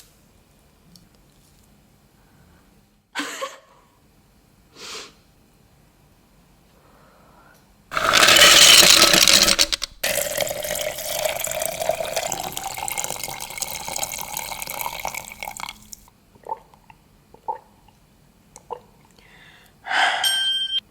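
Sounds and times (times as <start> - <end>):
liquid pouring into container: 7.9 - 16.0
liquid dripping: 9.4 - 16.0.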